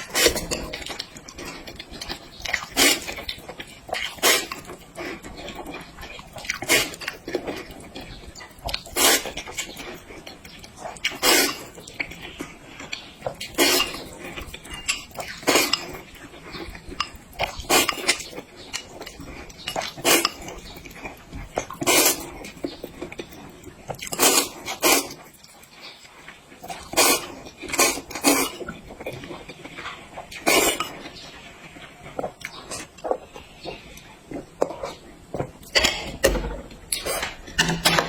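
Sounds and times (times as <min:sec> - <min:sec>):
person biting and chewing food: 0:00.0 - 0:25.3.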